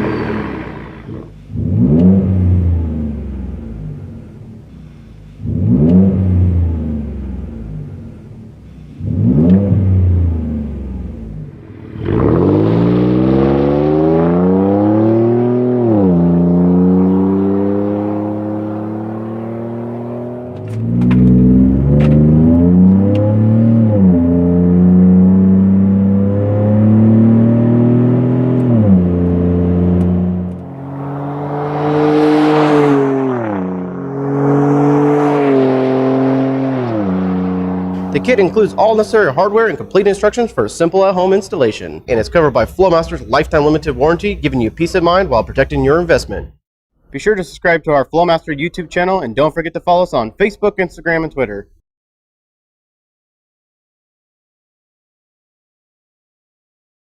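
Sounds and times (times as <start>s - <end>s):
truck engine accelerating: 0.0s - 46.6s.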